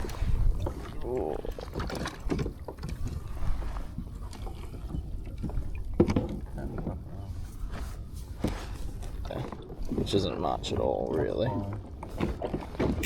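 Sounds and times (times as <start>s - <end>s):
wind on microphone: 0.0s - 1.8s.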